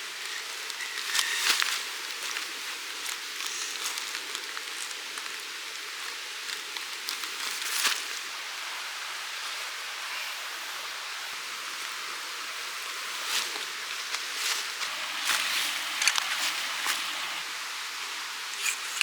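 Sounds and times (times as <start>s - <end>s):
stream rushing water: 8.2s - 19.0s.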